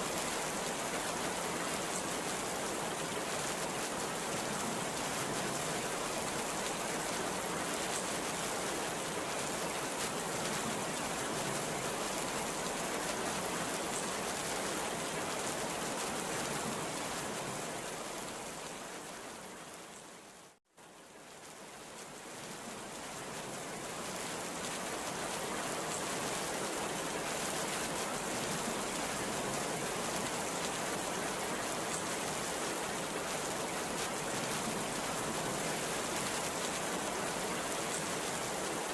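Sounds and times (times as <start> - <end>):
heavy rain falling: 20.4 - 38.9.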